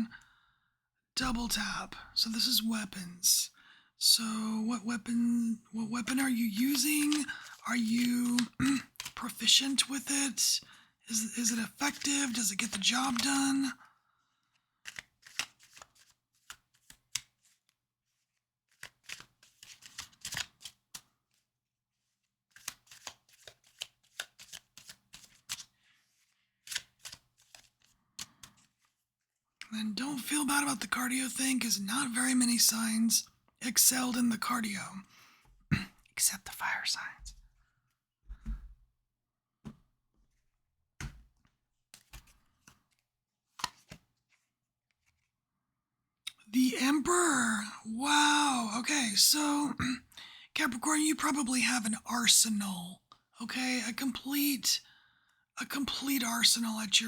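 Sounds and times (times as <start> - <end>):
cards being shuffled: 6.6 - 9.4, 11.5 - 13.4, 14.8 - 21.4, 22.0 - 28.9, 41.0 - 45.3
cards tapping on a table: 41.0 - 41.4.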